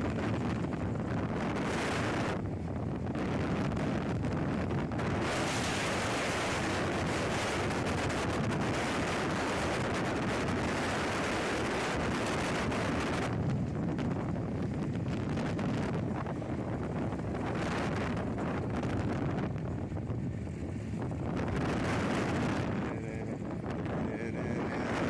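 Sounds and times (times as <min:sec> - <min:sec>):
wind buffeting microphone: 0:00.0 - 0:25.0
low rumble: 0:13.0 - 0:25.0.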